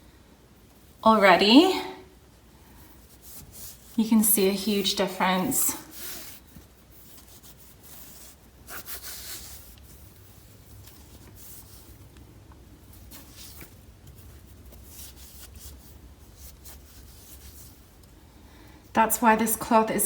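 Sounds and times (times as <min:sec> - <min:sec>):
cloth wiping a wheel rim: 0:02.3 - 0:04.0, 0:05.9 - 0:18.3.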